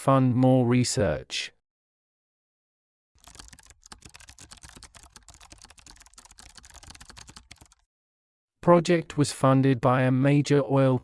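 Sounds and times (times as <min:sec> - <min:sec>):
keyboard typing: 0:03.2 - 0:07.9.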